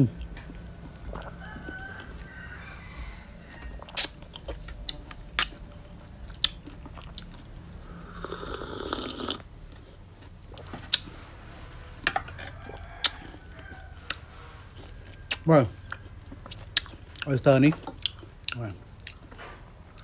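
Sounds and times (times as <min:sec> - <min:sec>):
chewing food: 0:00.0 - 0:20.0
wet lip smacks and clicks: 0:03.9 - 0:05.6
slurping a drink: 0:07.4 - 0:10.0.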